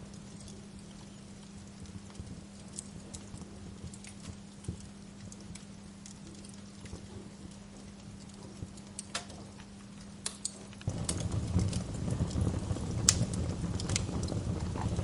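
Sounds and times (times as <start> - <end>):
fire popping: 0.0 - 15.0
wood fire crackling: 0.0 - 15.0
low rumble: 10.9 - 15.0.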